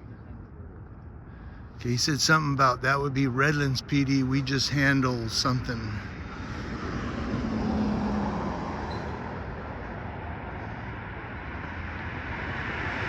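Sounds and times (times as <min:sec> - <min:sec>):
vehicle passing: 0:02.8 - 0:13.0.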